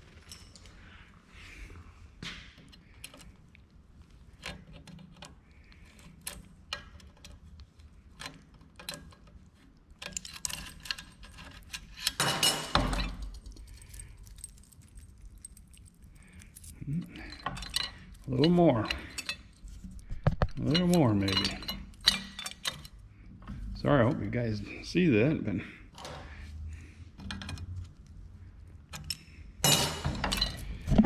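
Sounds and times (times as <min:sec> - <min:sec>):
metal chain clinking: 0:00.1 - 0:00.7, 0:10.0 - 0:19.8, 0:20.6 - 0:23.0.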